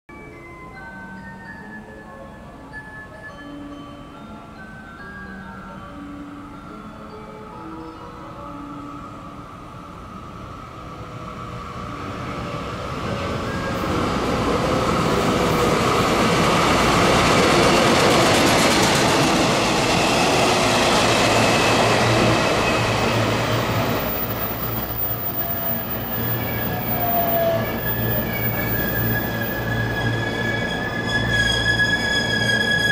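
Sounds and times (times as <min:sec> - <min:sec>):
diesel locomotive engine: 0:09.4 - 0:32.9
train wagons rolling past: 0:10.9 - 0:32.9
steady high ringing tone: 0:19.6 - 0:32.9.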